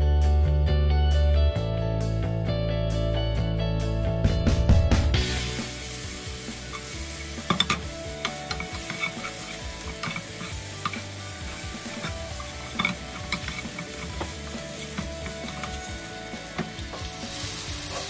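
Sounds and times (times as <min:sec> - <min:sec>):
food sizzling in a pan: 0:05.2 - 0:18.0
utensil scraping a pan: 0:06.4 - 0:18.0.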